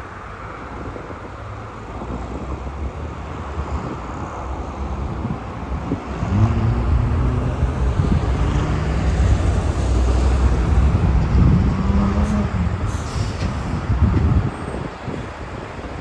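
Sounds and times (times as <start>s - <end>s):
traffic noise: 0.0s - 16.0s
vehicle engine accelerating: 5.7s - 14.5s.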